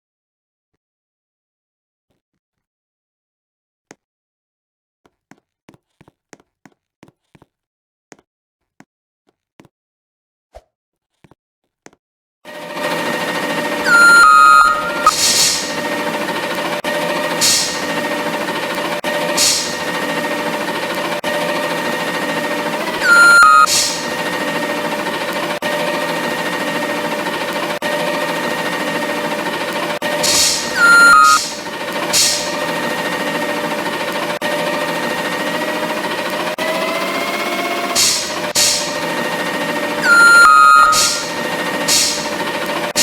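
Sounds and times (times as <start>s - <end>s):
brief falling tone: 12.5s - 35.8s, 37.2s - 43.0s
garbage truck mechanical whine: 12.5s - 43.0s
short hissing bursts: 15.1s - 15.8s, 17.4s - 17.9s, 19.4s - 19.9s, 23.7s - 24.1s, 30.2s - 32.6s, 38.0s - 39.0s, 41.9s - 42.3s.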